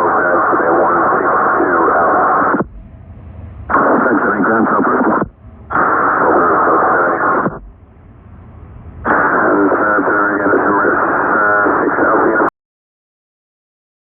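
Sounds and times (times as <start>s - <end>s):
radio voice transmissions: 0.0s - 2.7s, 3.7s - 7.8s, 9.0s - 12.5s.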